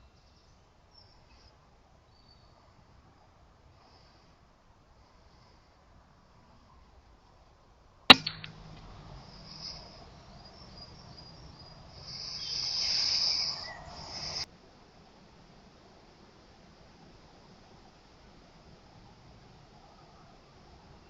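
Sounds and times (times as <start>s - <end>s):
air rifle shot: 8.1s - 8.9s
high thin chirring: 12.0s - 14.5s.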